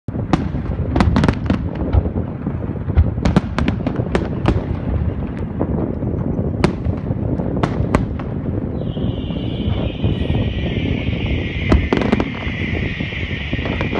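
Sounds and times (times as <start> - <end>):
fireworks cracking and banging: 0.1 - 13.9
low rumble: 3.9 - 13.9.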